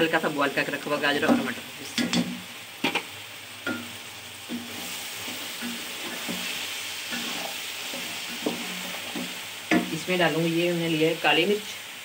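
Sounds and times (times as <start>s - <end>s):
vegetables sizzling in oil: 0.0s - 12.0s
wooden spatula scraping pot: 4.5s - 9.9s.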